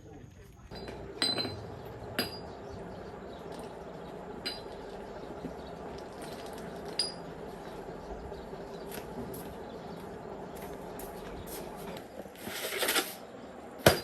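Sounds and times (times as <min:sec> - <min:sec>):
steady hum: 0:00.1 - 0:14.0
metallic clinks: 0:00.7 - 0:02.7.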